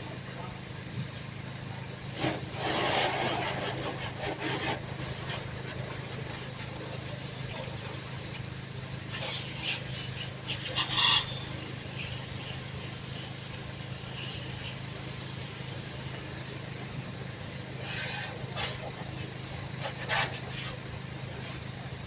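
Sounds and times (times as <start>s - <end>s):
engine idling: 0.0s - 22.0s
rough rubbing noise: 2.1s - 8.3s, 9.1s - 12.2s, 19.8s - 20.8s.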